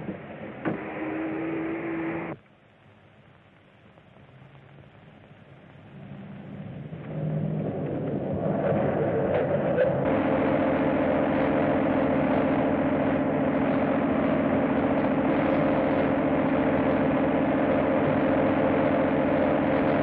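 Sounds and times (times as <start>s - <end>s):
rumbling train: 6.5s - 10.7s
vehicle running: 6.6s - 20.0s.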